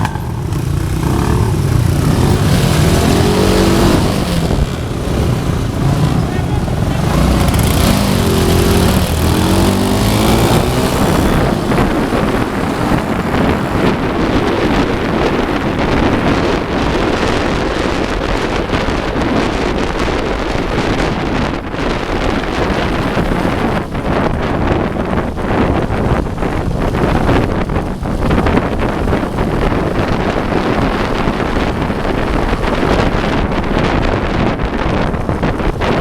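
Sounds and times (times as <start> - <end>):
motorcycle engine running: 0.0 - 36.0
wind rushing on microphone: 0.0 - 36.0.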